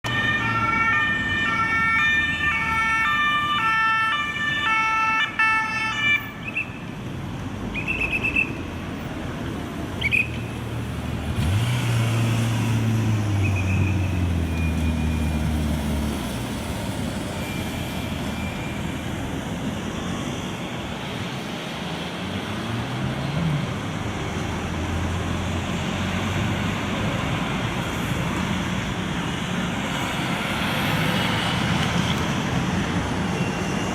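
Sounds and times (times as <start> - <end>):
two-tone police siren: 0.0 - 6.6, 17.2 - 21.6
traffic noise: 0.0 - 33.9
heavy engine pulling away: 10.6 - 33.9.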